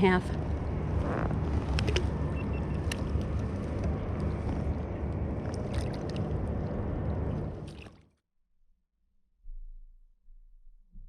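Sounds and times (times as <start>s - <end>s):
low rumble: 0.0s - 7.9s
water lapping against kayak: 1.0s - 8.0s.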